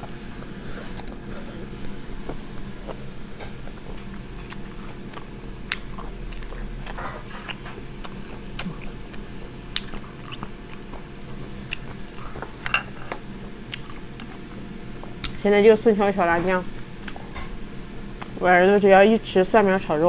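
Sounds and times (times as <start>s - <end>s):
person chewing food: 0.0s - 15.4s
steady low hum: 0.0s - 20.0s.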